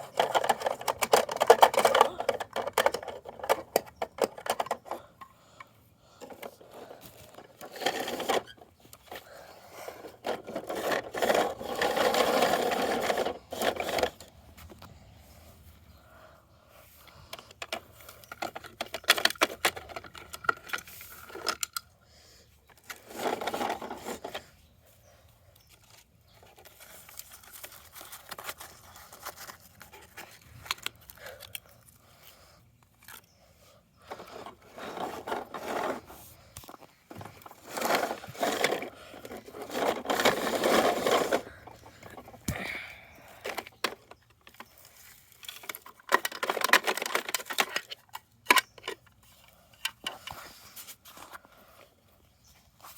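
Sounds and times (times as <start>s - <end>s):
plastic toy clicking and rattling: 0.0s - 5.0s, 17.3s - 21.8s, 45.4s - 49.1s.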